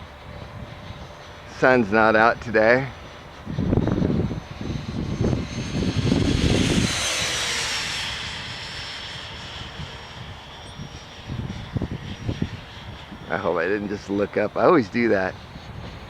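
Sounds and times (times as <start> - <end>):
electric ducted-fan jet whine: 0.0 - 16.0.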